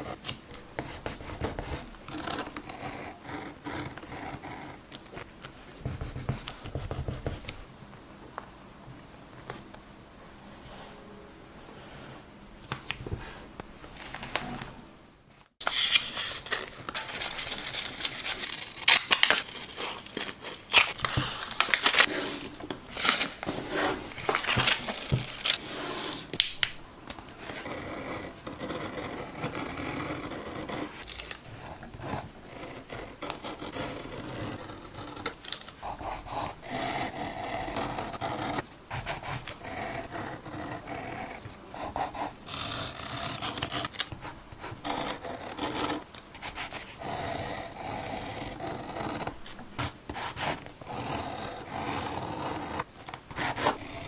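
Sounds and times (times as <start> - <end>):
rubbing and scraping on paper: 48.2 - 54.0.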